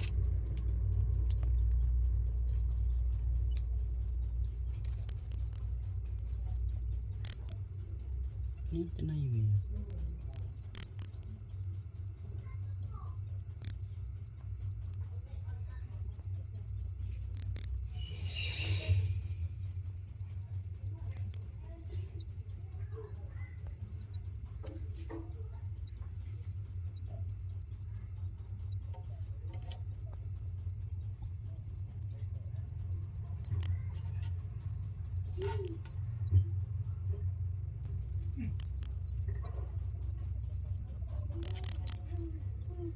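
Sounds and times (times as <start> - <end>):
cricket chirping: 0.0 - 42.9.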